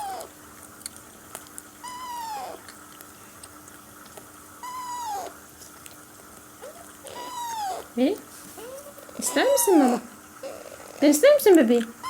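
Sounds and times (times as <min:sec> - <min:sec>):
parakeet chick begging calls: 0:01.8 - 0:02.6, 0:04.6 - 0:05.4, 0:06.6 - 0:08.0, 0:08.6 - 0:10.6.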